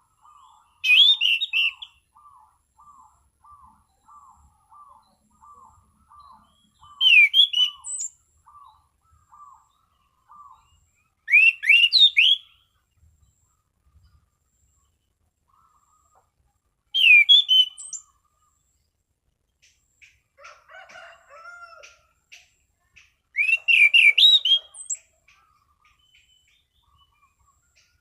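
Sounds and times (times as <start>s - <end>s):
bird twittering: 0.1s - 14.2s, 16.9s - 18.6s, 22.3s - 28.0s
thrush singing whistled notes: 0.4s - 12.8s, 16.9s - 18.3s, 23.3s - 28.0s.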